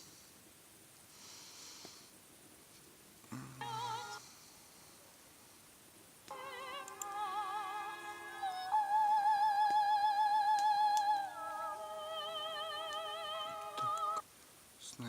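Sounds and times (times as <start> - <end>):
girl singing operatically: 6.3 - 14.2.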